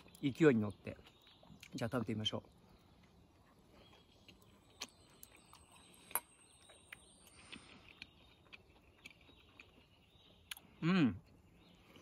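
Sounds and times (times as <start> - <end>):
chewing with mouth clicks: 2.5 - 12.0.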